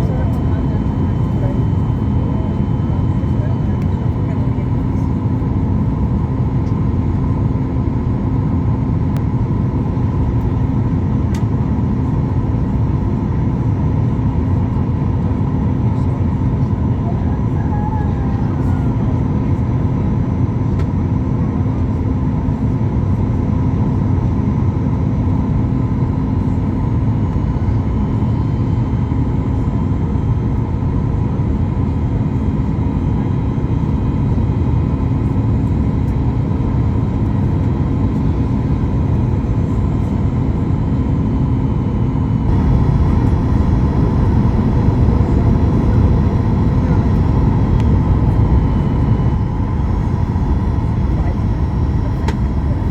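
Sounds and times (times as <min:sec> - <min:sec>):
airplane cabin rumble: 0:00.0 - 0:20.1, 0:33.8 - 0:52.9.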